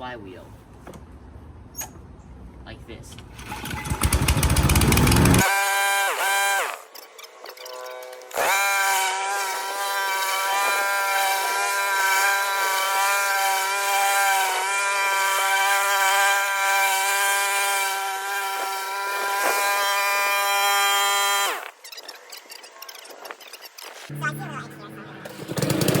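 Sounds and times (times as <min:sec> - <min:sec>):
lawnmower engine running: 0:03.3 - 0:05.4, 0:24.1 - 0:26.0.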